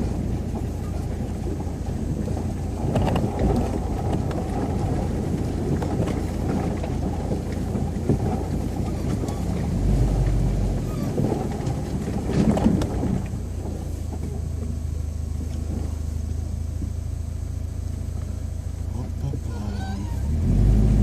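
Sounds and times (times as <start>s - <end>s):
car engine surging: 0.0s - 21.0s.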